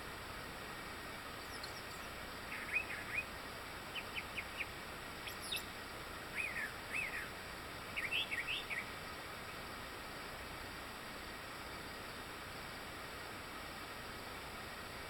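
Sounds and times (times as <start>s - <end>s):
steady background hiss: 0.0s - 15.0s
songbirds singing: 1.1s - 9.6s.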